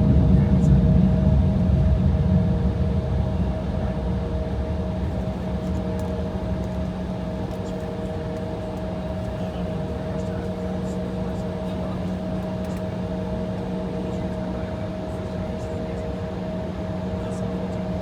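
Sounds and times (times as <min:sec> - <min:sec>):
jet taking off rumble: 0:00.0 - 0:06.6
aircraft cabin hum: 0:00.0 - 0:17.8.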